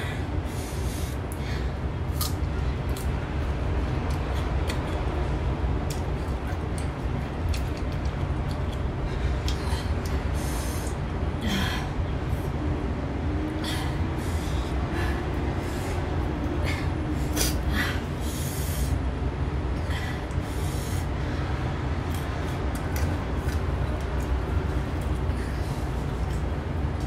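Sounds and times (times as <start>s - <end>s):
steady low hum: 0.0s - 27.0s
crunchy wet chewing: 2.1s - 10.2s, 21.9s - 27.0s.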